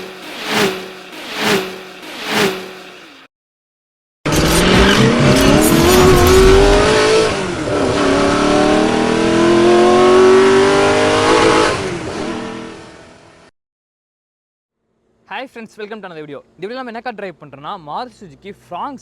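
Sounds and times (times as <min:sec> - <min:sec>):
car engine accelerating: 0:00.0 - 0:03.2, 0:04.3 - 0:13.4.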